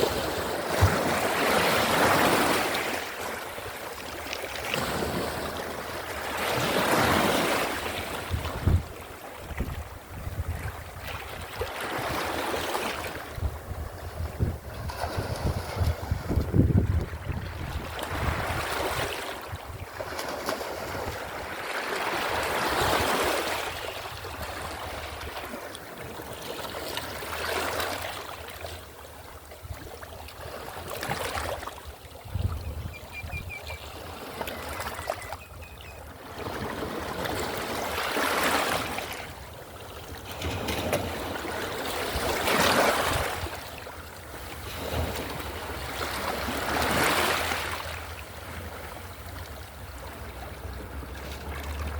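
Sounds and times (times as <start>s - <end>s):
sea waves washing: 40.1s - 51.9s.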